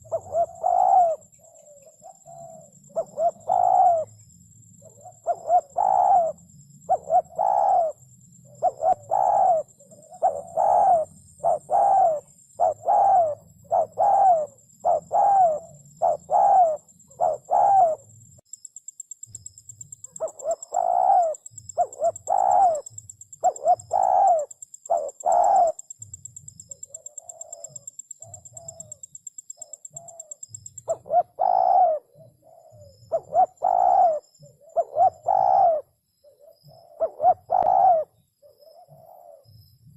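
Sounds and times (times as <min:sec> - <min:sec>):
dove cooing: 0:00.0 - 0:18.1, 0:20.0 - 0:39.7.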